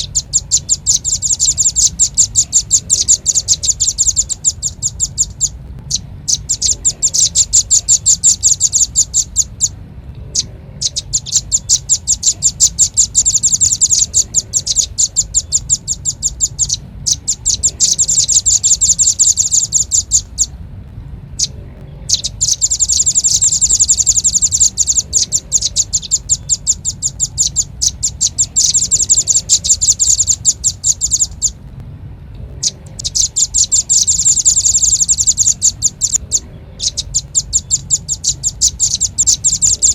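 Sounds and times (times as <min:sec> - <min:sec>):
bird chip notes: 0:00.0 - 0:39.9
low steady hum: 0:00.0 - 0:39.9.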